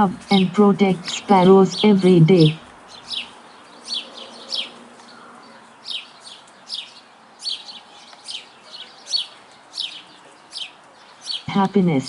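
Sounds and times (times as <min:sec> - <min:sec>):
sparrow chirping: 0:00.0 - 0:12.0.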